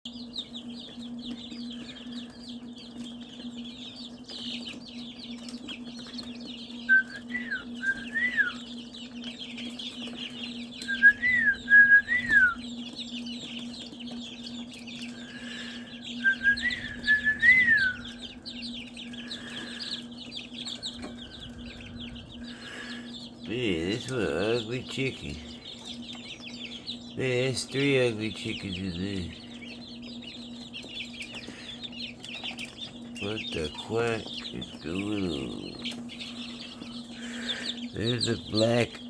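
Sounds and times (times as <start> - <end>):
chicks peeping: 0.0 - 39.0
steady low hum: 0.1 - 39.0
bird whistled call: 6.8 - 8.7, 10.8 - 12.7, 16.1 - 18.3.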